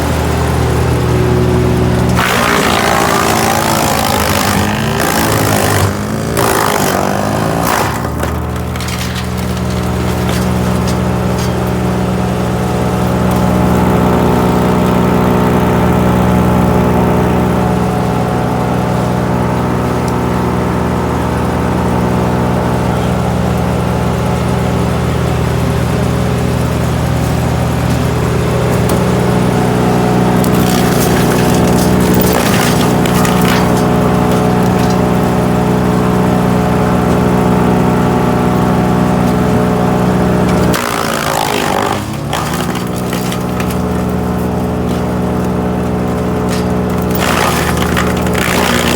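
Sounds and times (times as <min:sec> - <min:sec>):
wood crackling and splintering: 0:00.0 - 0:17.3, 0:24.3 - 0:48.9
wood chipper engine running: 0:00.0 - 0:48.9.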